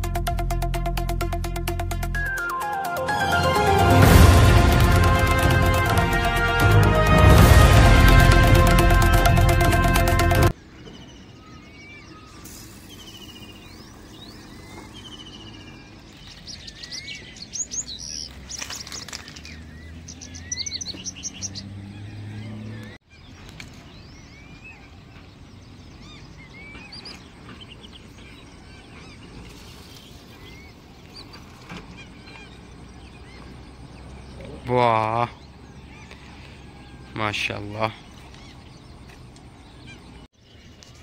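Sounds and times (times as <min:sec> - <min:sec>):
outdoor background noise: 0:09.8 - 0:41.0
small birds chirping: 0:10.5 - 0:41.0.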